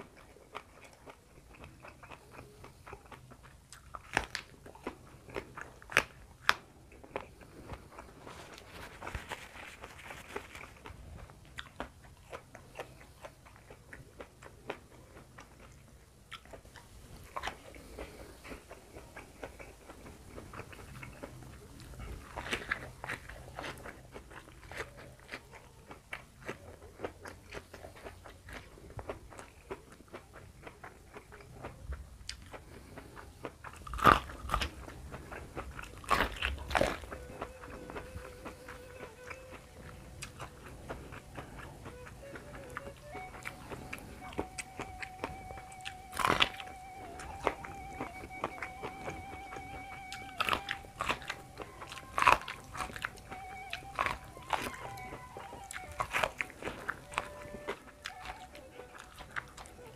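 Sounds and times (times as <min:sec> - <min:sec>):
person chewing raw vegetables: 0:00.0 - 0:59.9.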